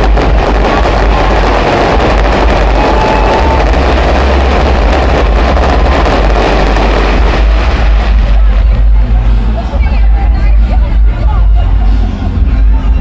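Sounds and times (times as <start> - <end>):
fireworks booming: 0.0 - 10.1
fireworks crackling: 0.0 - 11.8.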